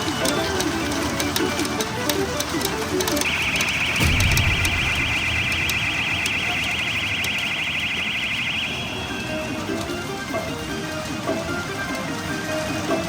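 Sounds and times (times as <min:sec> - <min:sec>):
warbling electronic alarm tone: 0:03.2 - 0:09.8
low thump: 0:04.0 - 0:07.4.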